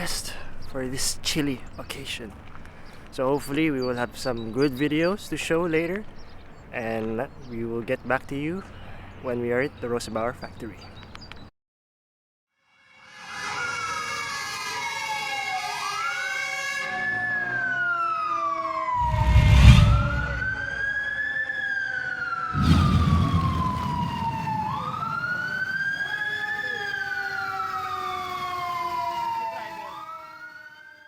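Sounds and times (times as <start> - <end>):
fire truck siren wailing: 12.8 - 31.0
loud low rumbles: 19.0 - 20.9, 22.5 - 25.7.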